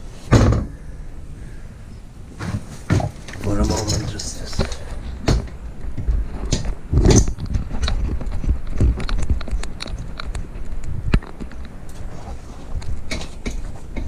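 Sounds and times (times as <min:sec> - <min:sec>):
heavy thump: 0:00.3 - 0:00.8.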